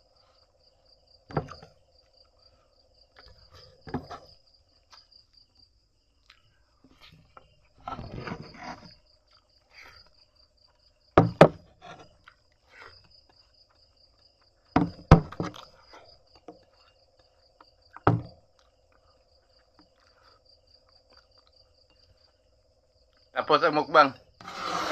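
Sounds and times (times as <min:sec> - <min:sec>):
crickets chirping: 0:00.0 - 0:24.9
sharp knocks: 0:11.2 - 0:11.6, 0:14.8 - 0:15.6, 0:18.0 - 0:18.4.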